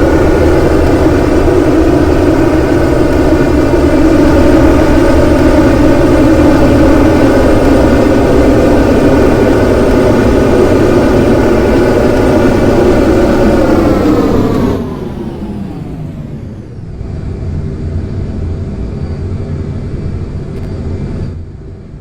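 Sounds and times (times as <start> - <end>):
aircraft engines running: 0.0 - 22.0.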